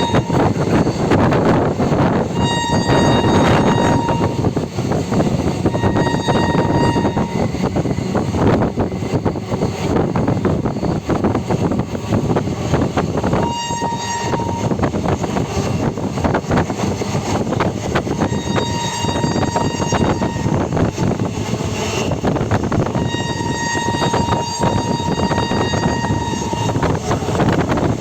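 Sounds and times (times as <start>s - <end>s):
train horn: 0.0s - 8.6s, 13.2s - 15.4s, 18.0s - 21.2s, 22.0s - 28.0s
train rumble and wheel clatter: 0.0s - 28.0s.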